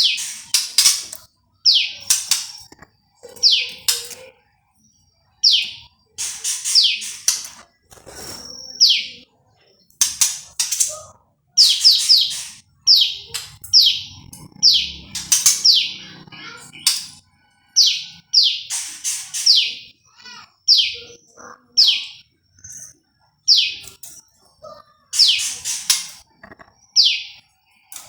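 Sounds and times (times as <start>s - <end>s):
bird chirping and whistling: 11.6s - 16.0s.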